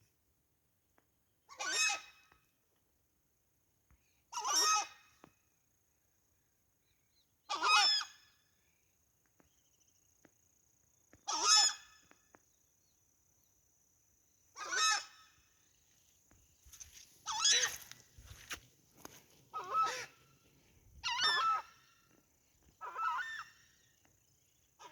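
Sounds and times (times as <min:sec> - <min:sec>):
large bird honking: 0:19.5 - 0:20.3.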